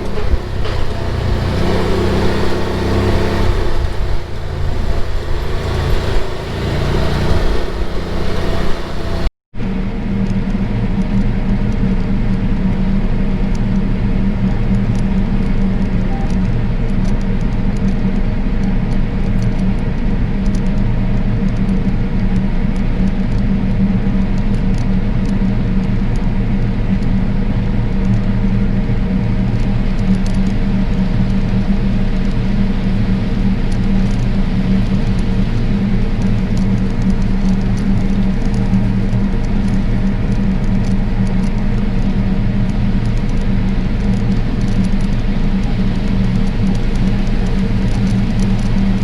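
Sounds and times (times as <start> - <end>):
farm machine engine running: 0.0 - 9.3.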